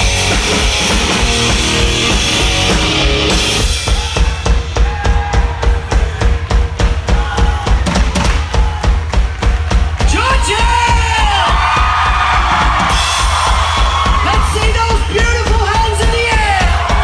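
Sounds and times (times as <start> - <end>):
distorted guitar and cymbals: 0.0 - 4.7
drum kit and bass beat: 0.0 - 17.0.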